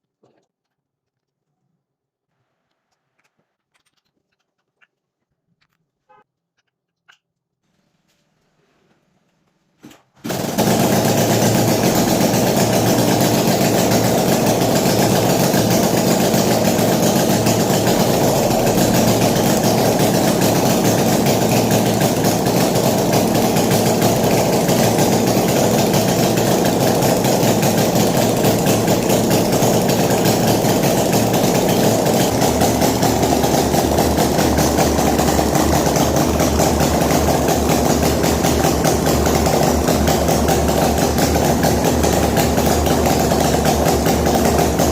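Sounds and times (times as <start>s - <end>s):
engine idling: 10.3s - 44.9s.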